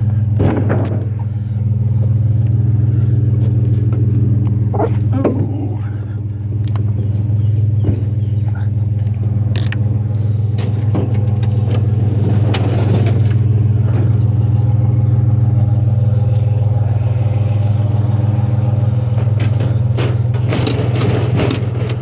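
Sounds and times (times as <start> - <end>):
vehicle engine idling: 0.0 - 22.0
knocks and clatter of handling: 3.5 - 14.3, 19.2 - 22.0.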